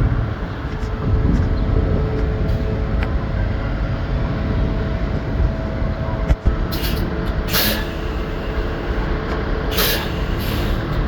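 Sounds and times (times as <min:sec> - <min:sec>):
heavy engines rumbling: 0:00.0 - 0:11.0
short hisses of air: 0:06.7 - 0:08.0, 0:09.7 - 0:10.8.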